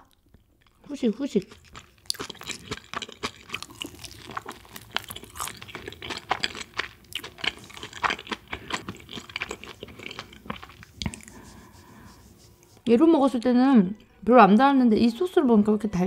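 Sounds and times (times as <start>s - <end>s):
chewing crunchy food: 0.0s - 12.7s.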